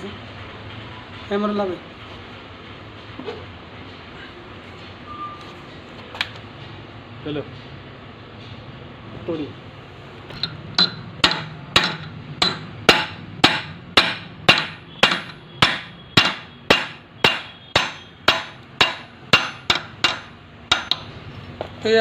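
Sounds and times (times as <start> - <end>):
hammer tapping on metal: 10.3 - 21.8.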